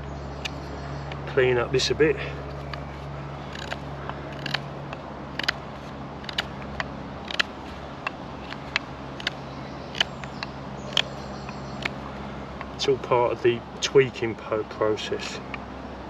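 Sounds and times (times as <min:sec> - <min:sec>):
knife scraping wood: 0:02.4 - 0:04.7, 0:05.3 - 0:12.0.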